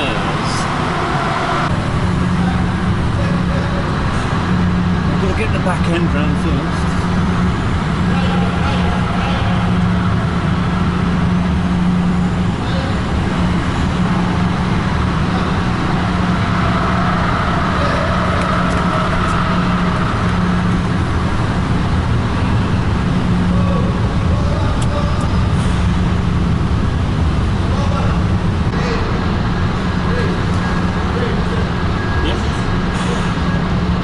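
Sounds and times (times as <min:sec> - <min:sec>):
diesel truck engine at low revs: 0:00.0 - 0:34.0.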